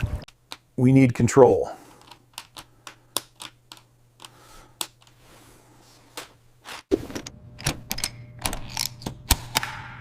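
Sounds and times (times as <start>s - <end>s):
plastic pieces clicking: 2.0s - 5.1s.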